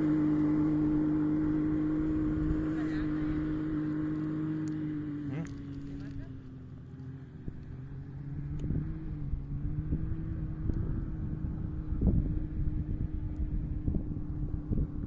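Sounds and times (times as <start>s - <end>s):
distant off-road vehicle engine: 0.0s - 15.0s
wind buffeting microphone: 7.4s - 15.0s.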